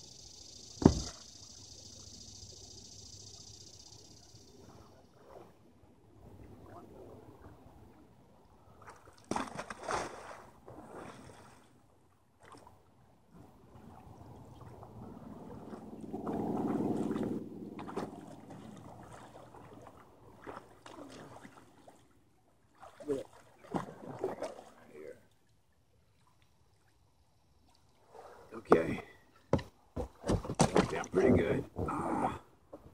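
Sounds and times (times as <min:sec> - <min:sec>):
water sloshing around kayak hull: 0:00.8 - 0:01.2, 0:13.7 - 0:32.2
sharp splash: 0:08.8 - 0:11.7, 0:22.8 - 0:24.8
muffled gurgling water surge: 0:13.8 - 0:21.4.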